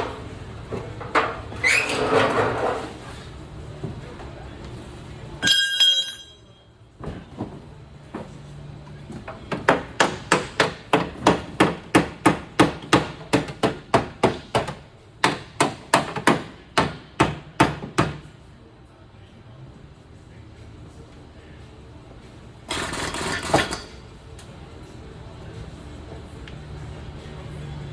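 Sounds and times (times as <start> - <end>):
high-pitched metallic ring: 5.4 - 6.7.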